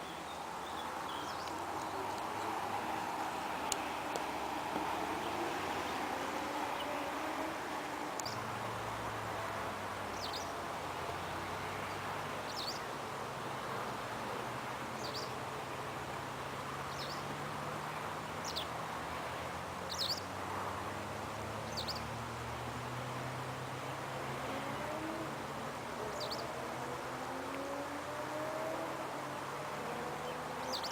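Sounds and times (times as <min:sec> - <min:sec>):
bird chirping: 0:00.0 - 0:03.0, 0:08.2 - 0:08.4, 0:10.1 - 0:10.6, 0:11.3 - 0:12.9, 0:15.0 - 0:15.4, 0:16.8 - 0:17.3, 0:18.4 - 0:18.8, 0:19.9 - 0:20.3, 0:21.6 - 0:22.2, 0:26.1 - 0:26.5, 0:30.1 - 0:30.9
background noise: 0:00.0 - 0:30.9.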